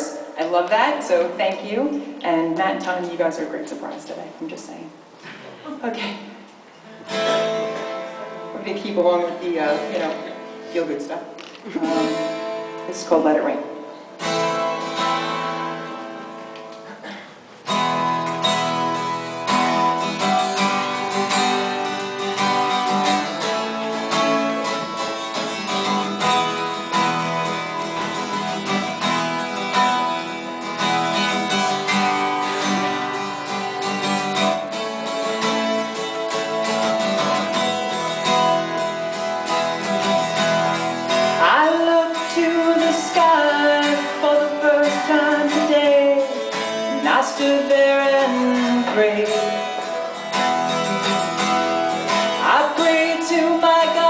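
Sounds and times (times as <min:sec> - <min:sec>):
guitar playing: 0:00.0 - 0:54.0
person singing: 0:41.4 - 0:49.8, 0:52.3 - 0:54.0.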